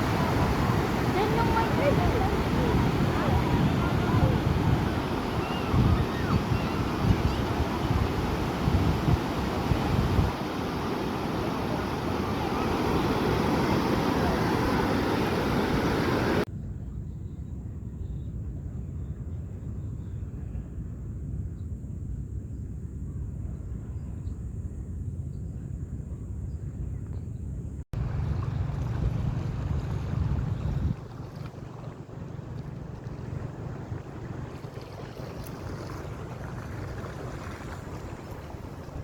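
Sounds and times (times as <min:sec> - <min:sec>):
surf: 0:00.0 - 0:16.5, 0:28.0 - 0:39.0
wind buffeting microphone: 0:00.0 - 0:16.5, 0:27.9 - 0:39.0
steady low rumble: 0:28.0 - 0:34.7.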